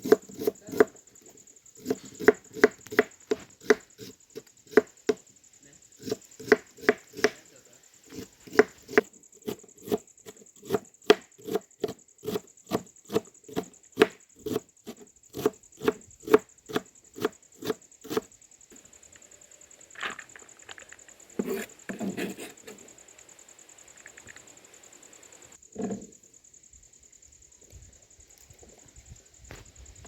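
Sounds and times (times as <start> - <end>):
knife chopping on cutting board: 6.0 - 7.4.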